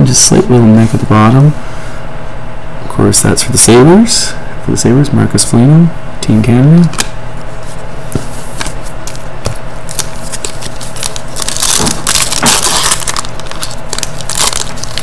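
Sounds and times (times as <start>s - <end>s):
plastic sleeves crackling and crinkling: 9.9s - 15.0s.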